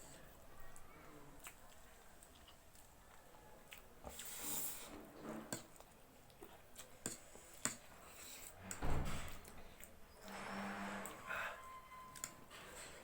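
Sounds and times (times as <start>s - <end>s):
mouth and chewing noises: 0.6s - 8.7s.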